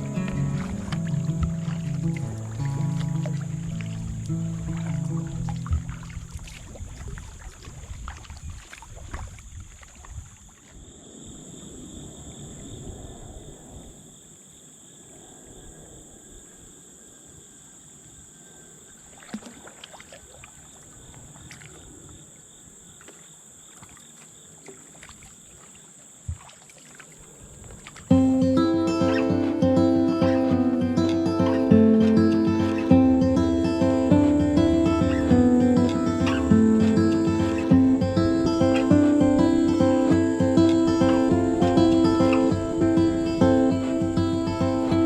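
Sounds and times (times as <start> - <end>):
paddle knocks: 0.0 - 9.8
water noise: 0.0 - 14.1, 18.4 - 45.0.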